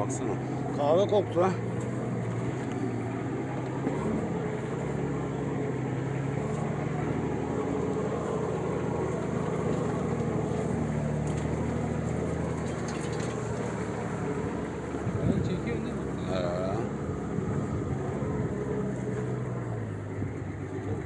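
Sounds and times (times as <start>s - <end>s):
vehicle engine droning: 0.0s - 21.0s
light rumble: 6.0s - 21.0s.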